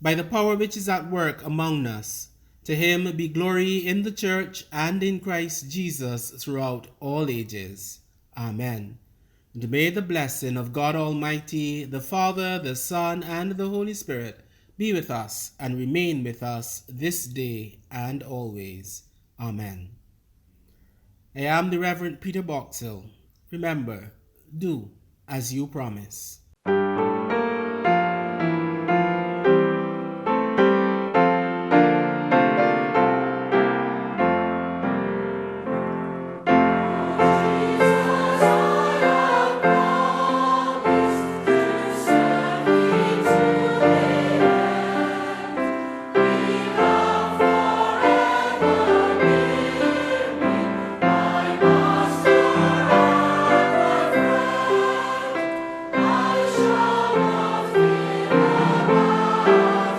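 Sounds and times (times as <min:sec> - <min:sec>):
piano: 0:26.6 - 0:59.9
choir singing: 0:31.8 - 0:59.9.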